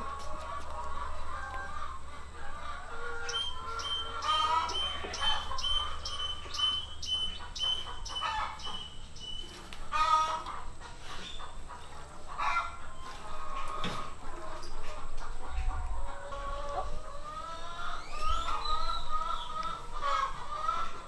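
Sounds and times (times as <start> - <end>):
birds clucking calls: 0.0 - 21.0.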